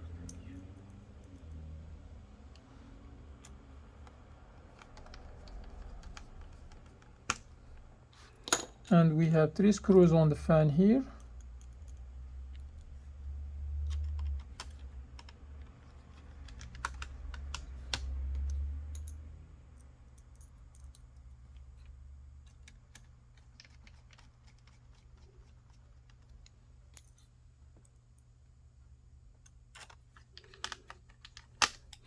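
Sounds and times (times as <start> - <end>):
screwdriver clicks and taps: 3.4 - 7.4, 13.9 - 19.1.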